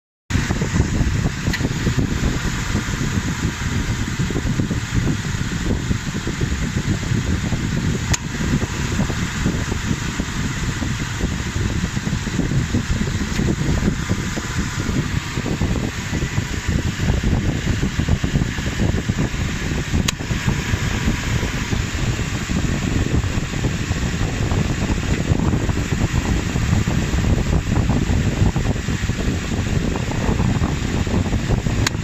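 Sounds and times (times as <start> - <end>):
rough irregular engine rumble: 0.3 - 32.0
sharp click: 1.4 - 1.7, 8.1 - 8.3, 31.8 - 32.0.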